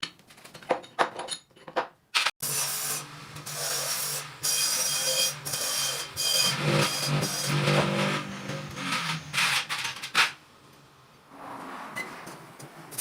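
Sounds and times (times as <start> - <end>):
scraping rusty metal: 3.4 - 10.4.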